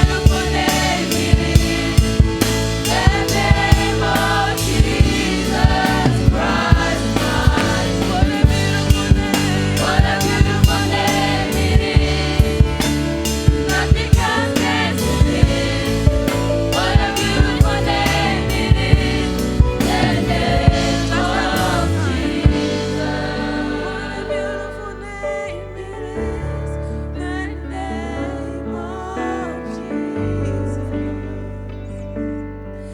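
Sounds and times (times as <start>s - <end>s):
drum kit: 0.0s - 24.4s
choir singing gospel: 0.0s - 31.4s
keyboard chords: 0.0s - 32.9s.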